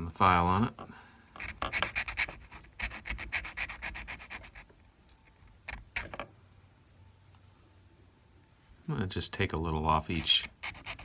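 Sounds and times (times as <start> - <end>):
hand file rasping on metal: 1.4 - 4.6, 10.2 - 11.0.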